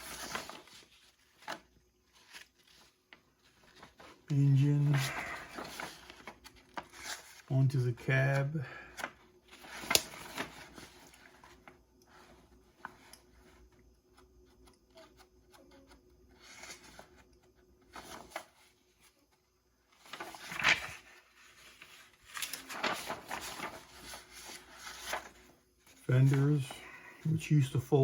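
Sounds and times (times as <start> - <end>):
plastic rustling: 20.0 - 26.8.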